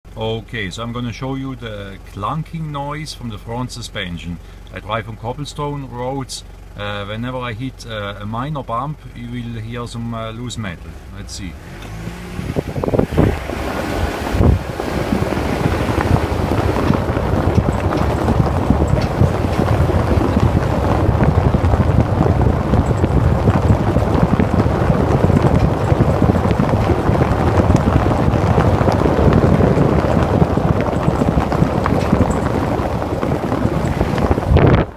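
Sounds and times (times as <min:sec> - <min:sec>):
road rumble over cobblestones: 0:00.0 - 0:34.9.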